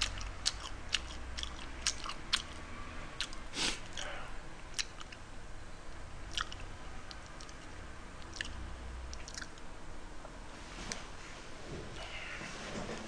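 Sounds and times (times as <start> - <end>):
chewing food: 0.0 - 4.1, 4.7 - 5.2, 6.3 - 9.6.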